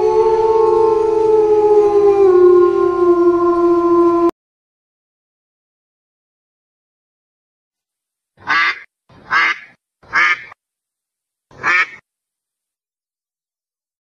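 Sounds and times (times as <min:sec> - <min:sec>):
duck quacking: 0:08.4 - 0:10.6, 0:11.6 - 0:12.0.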